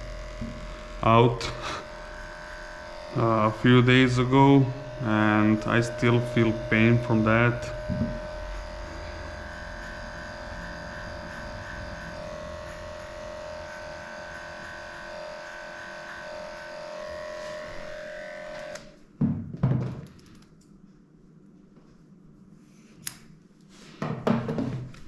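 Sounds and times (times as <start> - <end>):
electric clippers running: 0.0 - 19.0
loud low thumps: 7.8 - 8.4.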